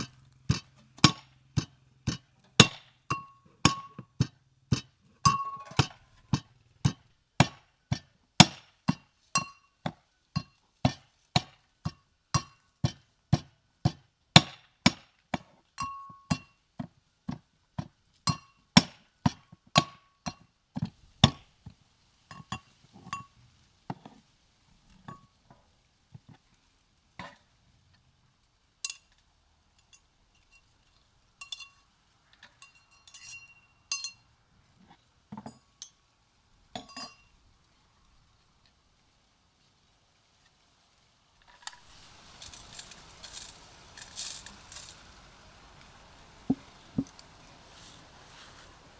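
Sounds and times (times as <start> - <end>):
cooking utensils clinking: 5.2 - 6.0, 31.4 - 31.8, 32.5 - 34.2, 41.6 - 45.2.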